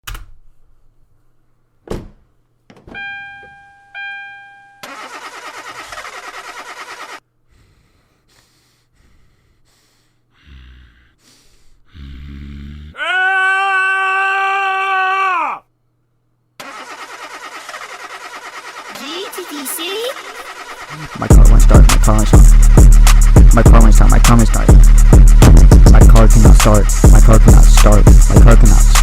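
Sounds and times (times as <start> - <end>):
car chime: 2.9 - 5.1
car starter cranking: 3.0 - 7.2, 16.6 - 23.4.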